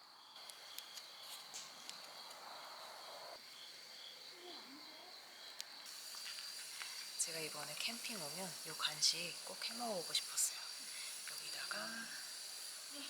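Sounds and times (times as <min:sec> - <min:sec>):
crickets chirping: 0:00.0 - 0:13.0
faint clicks: 0:05.6 - 0:07.1.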